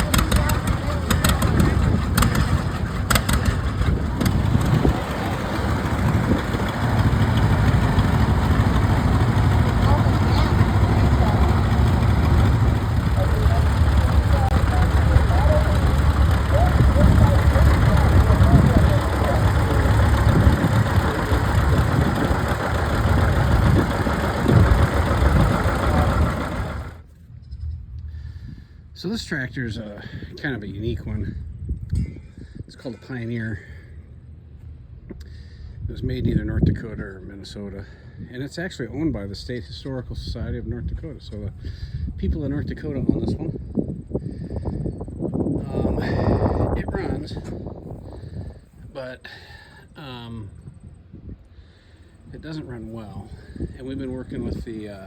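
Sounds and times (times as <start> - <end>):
engine running: 0.0 - 27.7, 44.4 - 49.0, 51.8 - 55.0.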